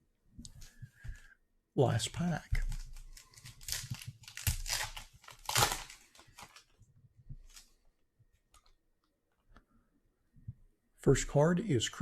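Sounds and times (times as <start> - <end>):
wrapper tearing and crinkling: 2.7 - 6.7.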